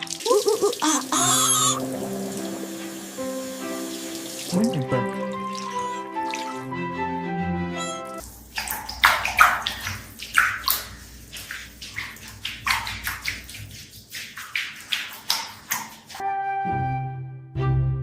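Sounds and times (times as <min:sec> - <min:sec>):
water splashing and sloshing: 0:00.0 - 0:06.8, 0:08.2 - 0:16.2
background music: 0:00.0 - 0:08.2, 0:16.2 - 0:18.0.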